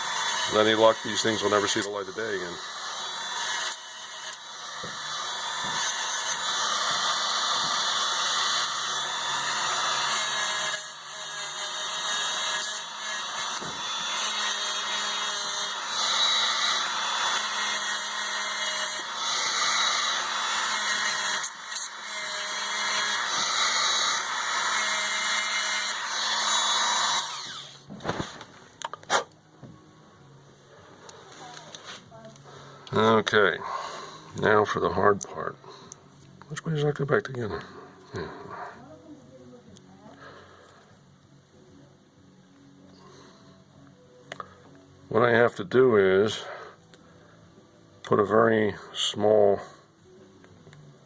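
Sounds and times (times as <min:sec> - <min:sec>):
handheld power tool running: 0:00.0 - 0:27.9.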